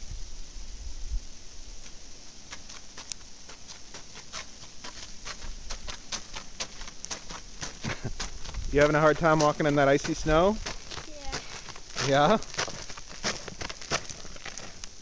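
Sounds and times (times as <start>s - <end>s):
wind rumble on microphone: 0.0s - 2.1s, 7.5s - 11.0s
hiss of falling sleet: 0.0s - 15.0s
footsteps crunching in icy snow: 1.8s - 15.0s.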